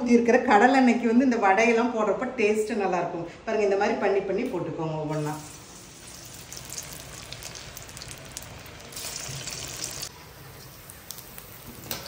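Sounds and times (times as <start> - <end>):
deep-frying sizzle with crackles: 5.2 - 12.0.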